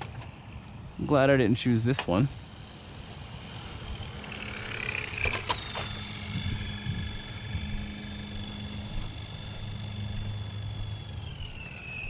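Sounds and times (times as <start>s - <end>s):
electric motor whining: 0.0s - 12.0s
sharp clicks: 4.3s - 8.4s.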